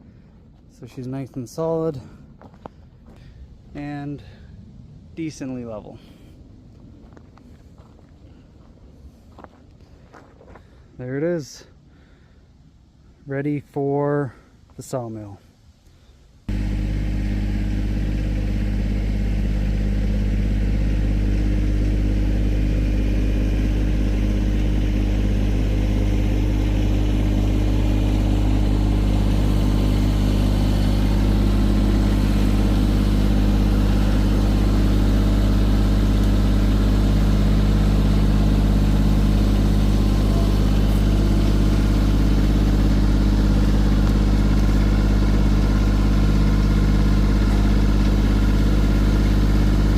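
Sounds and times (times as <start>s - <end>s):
engine running steadily: 16.5s - 49.9s.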